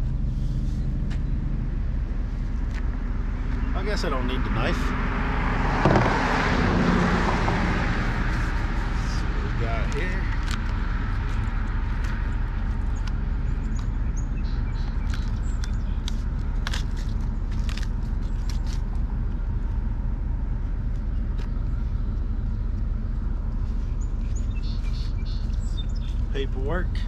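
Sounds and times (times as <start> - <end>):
steady low rumble: 0.0 - 27.0
cardboard and paper crinkling: 14.9 - 19.0.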